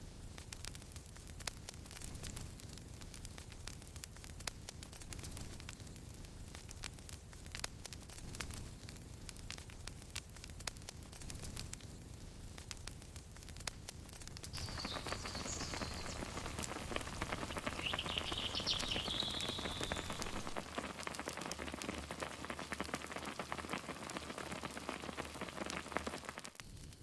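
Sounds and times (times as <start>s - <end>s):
campfire crackling: 0.0s - 27.0s
high wavering whistling tone: 17.6s - 20.6s.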